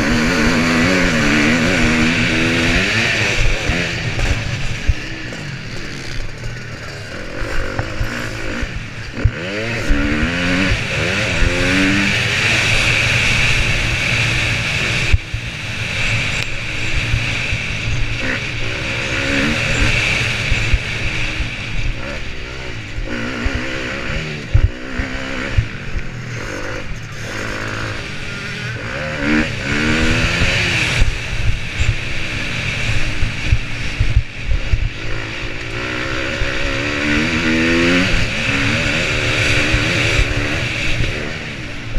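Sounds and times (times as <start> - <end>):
motocross bike engine racing: 0.0 - 41.9
wind rush on microphone: 12.9 - 26.0, 29.3 - 41.9.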